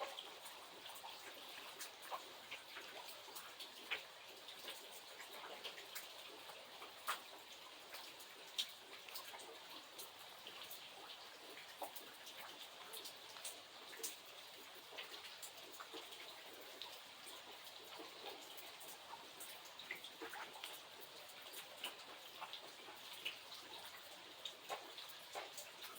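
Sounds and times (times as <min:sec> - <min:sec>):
rain falling: 0:00.0 - 0:25.9.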